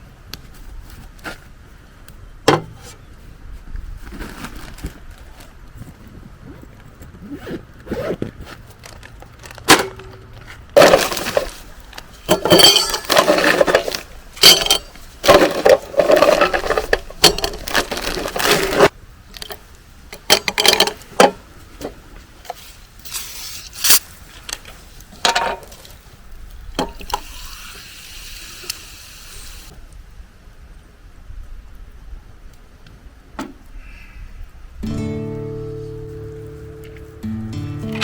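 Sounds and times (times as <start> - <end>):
objects knocking and clinking: 9.7 - 11.6, 12.3 - 18.9.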